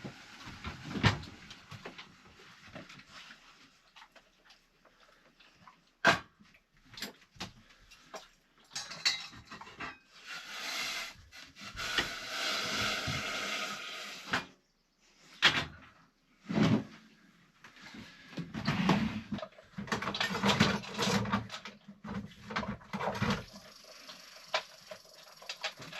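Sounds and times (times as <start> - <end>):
objects knocking and clattering: 7.0 - 10.2, 18.4 - 23.7.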